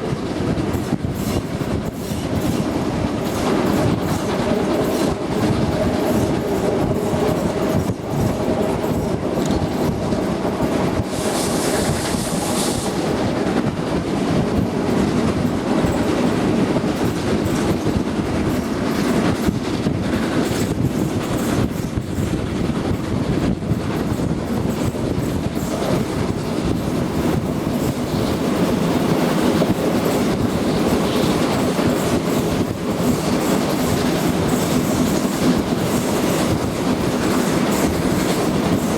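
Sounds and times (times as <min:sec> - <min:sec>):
train rumbling on track: 0:00.0 - 0:38.9
wheels clicking over rail joints: 0:00.1 - 0:11.1.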